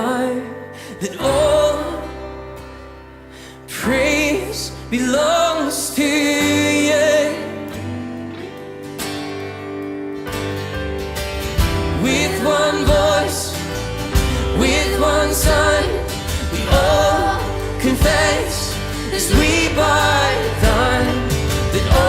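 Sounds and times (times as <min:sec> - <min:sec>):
band playing: 0:11.6 - 0:22.0.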